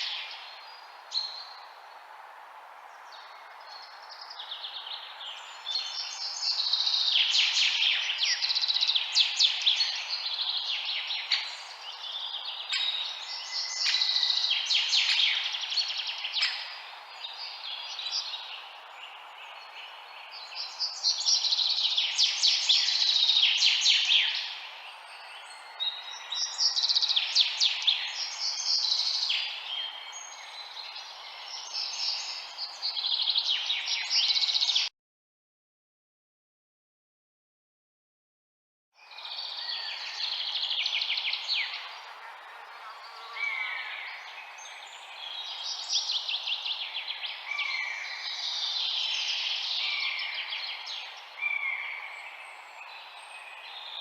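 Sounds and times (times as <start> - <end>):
small birds chirping: 2.9 - 34.9, 39.0 - 54.0.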